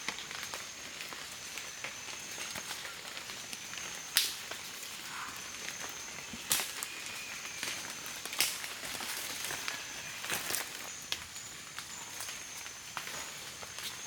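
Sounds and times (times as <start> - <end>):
sharp snaps: 4.2 - 4.4.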